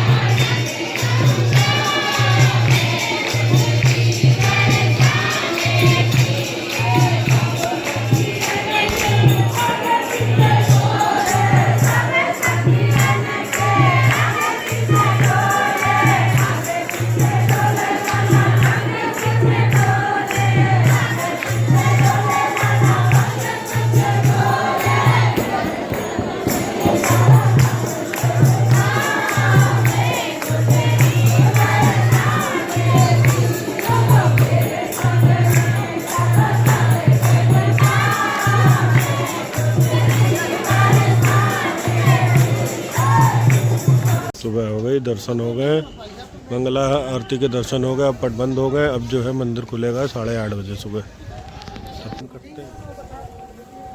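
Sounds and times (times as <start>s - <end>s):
rattling high percussion: 0.0s - 44.4s
voices singing together: 0.0s - 44.6s
deep drum beat: 17.2s - 44.3s.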